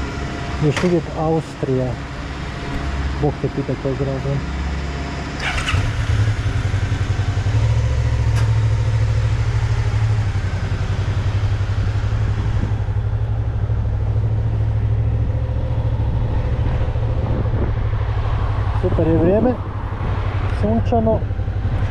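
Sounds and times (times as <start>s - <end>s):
motorcycle engine running: 5.4s - 21.9s
wind rushing: 15.9s - 20.5s.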